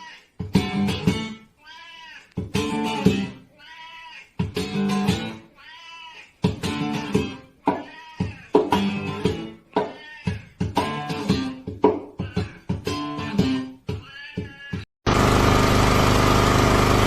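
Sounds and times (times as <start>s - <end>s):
cat meowing: 0.0s - 0.3s, 1.6s - 2.4s, 3.5s - 4.4s, 5.5s - 6.4s, 7.6s - 8.7s, 9.8s - 10.6s, 14.0s - 14.9s
strummed guitar chords: 0.4s - 1.4s, 2.4s - 3.5s, 4.4s - 5.5s, 6.4s - 7.7s, 8.6s - 9.9s, 10.5s - 14.0s.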